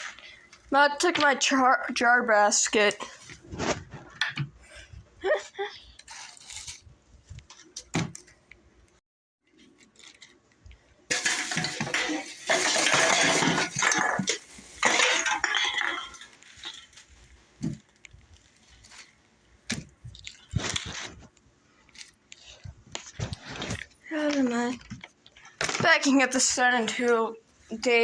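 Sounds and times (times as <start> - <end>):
glass jars clinking: 11.1 - 16.8.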